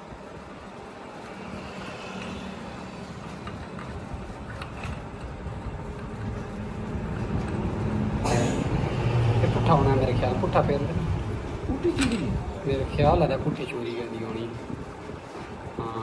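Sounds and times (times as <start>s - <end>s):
lathe motor and gear hum: 0.0s - 16.0s.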